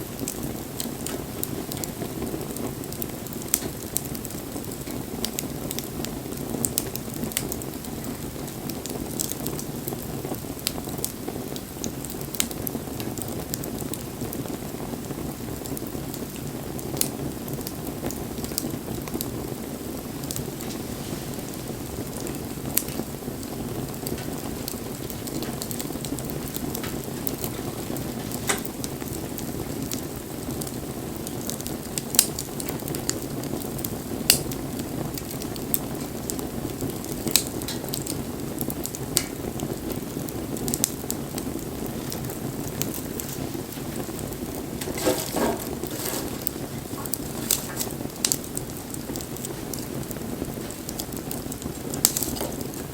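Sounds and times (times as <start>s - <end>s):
fire crackling and popping: 0.0s - 52.9s
rush of flames: 0.0s - 52.9s.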